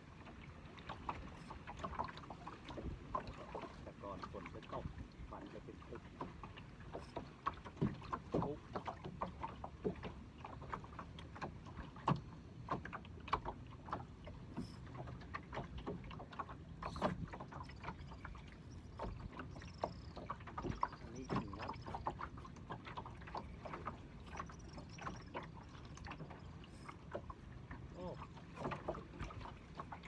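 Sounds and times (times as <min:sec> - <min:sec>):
water lapping against boat hull: 0:00.0 - 0:30.0
light knocks and clicks: 0:06.1 - 0:27.4.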